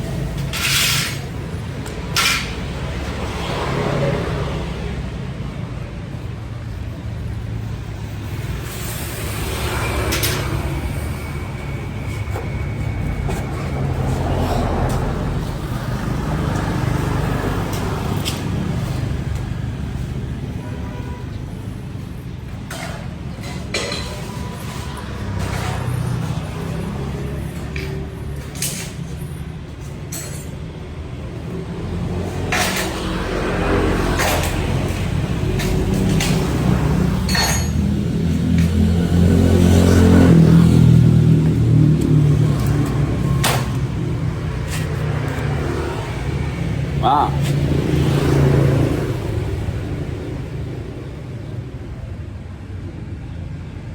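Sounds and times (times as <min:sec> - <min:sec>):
motorcycle engine revving: 0:31.7 - 0:50.7.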